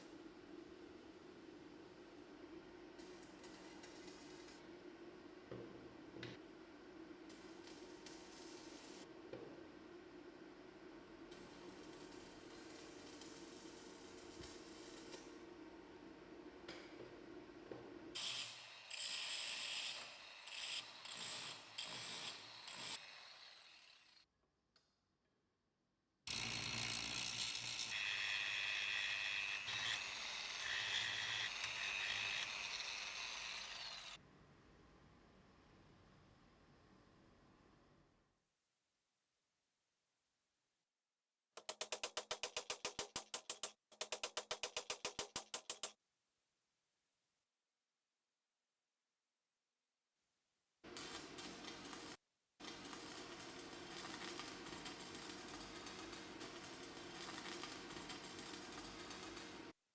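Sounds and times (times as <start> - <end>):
rapid regular clicking: 41.6 - 46.0.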